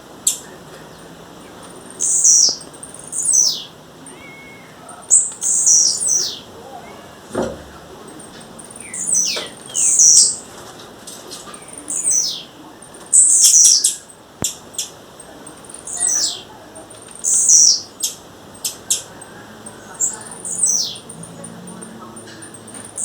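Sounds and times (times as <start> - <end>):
bird calling high notes: 1.4 - 7.3, 15.3 - 23.0.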